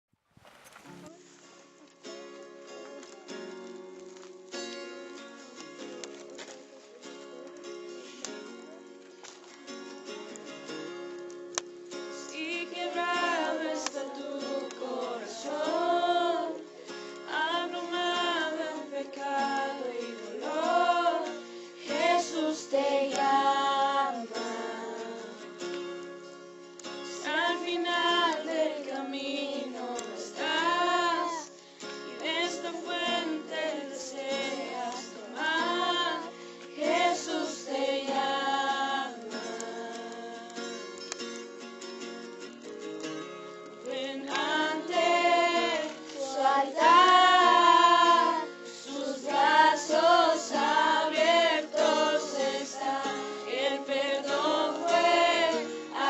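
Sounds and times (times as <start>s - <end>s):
acoustic guitar accompaniment: 0.4s - 56.0s
voices singing worship song: 12.1s - 25.8s, 27.1s - 41.0s, 43.8s - 56.0s.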